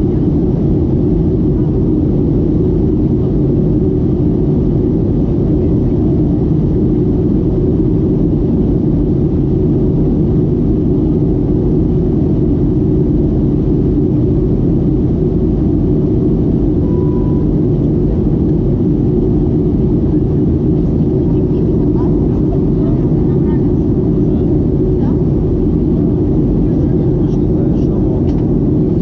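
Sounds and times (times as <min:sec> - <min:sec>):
airplane cabin engine rumble: 0:00.0 - 0:29.0
faint single tone: 0:16.8 - 0:17.5.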